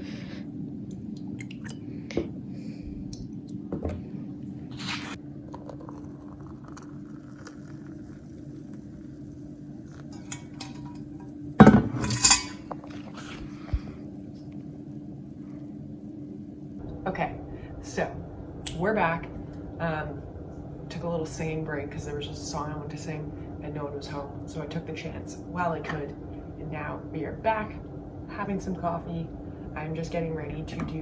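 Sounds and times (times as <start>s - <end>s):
steady low hum: 0.0s - 31.0s
spoon and mug clinking: 10.1s - 13.4s.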